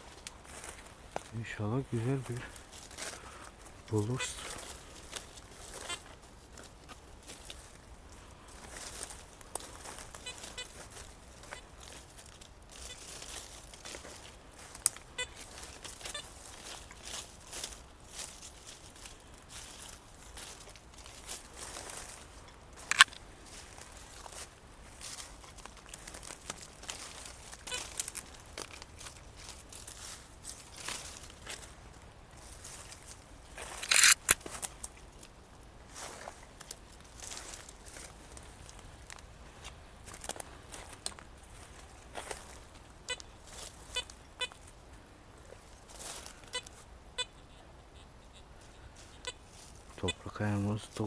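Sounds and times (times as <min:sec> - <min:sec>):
footsteps through grass and undergrowth: 0:00.0 - 0:47.0, 0:48.6 - 0:51.0
metal detector beeps: 0:33.8 - 0:34.4.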